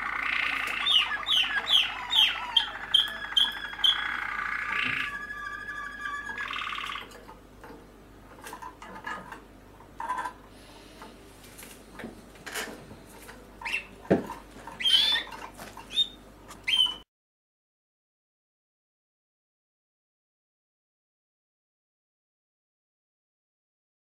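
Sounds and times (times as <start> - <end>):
buzzy bird call: 0.0 - 7.1, 14.8 - 15.3
canaries chirping and squeaking: 0.0 - 7.3, 13.6 - 17.0.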